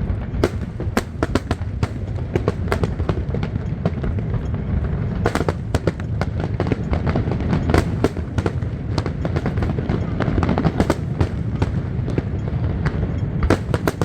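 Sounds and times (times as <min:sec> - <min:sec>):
low rumble: 0:00.0 - 0:13.8
fireworks bangs: 0:00.0 - 0:14.0.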